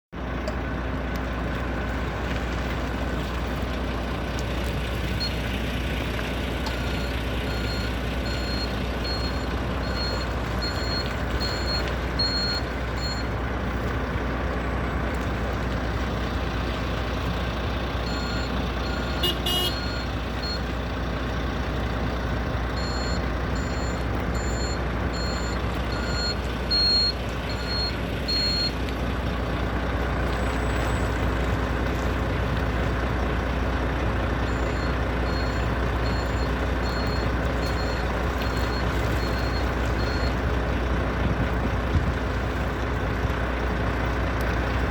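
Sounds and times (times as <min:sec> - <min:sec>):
high warning beeps: 0:06.7 - 0:13.4, 0:18.0 - 0:20.7, 0:22.7 - 0:28.8, 0:34.5 - 0:40.4.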